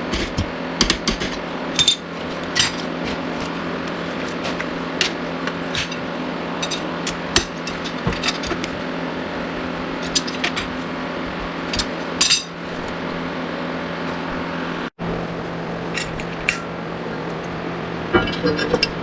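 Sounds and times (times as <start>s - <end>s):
steady low hum: 0.0s - 19.0s
metal tools clinking: 1.8s - 2.8s, 4.5s - 8.8s, 10.0s - 10.8s, 11.5s - 12.9s.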